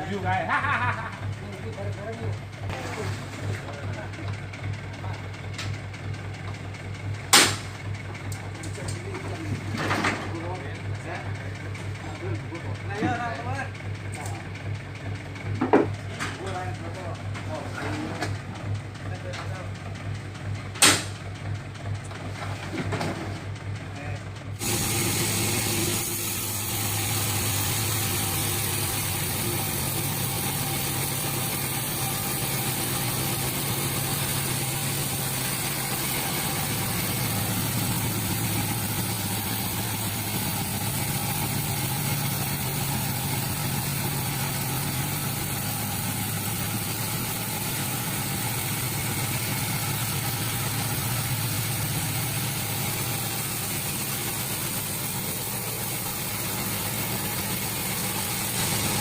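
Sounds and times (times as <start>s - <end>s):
engine running loudly: 0.0s - 4.4s, 24.0s - 59.0s
sharp knock: 7.3s - 7.7s, 20.8s - 21.2s.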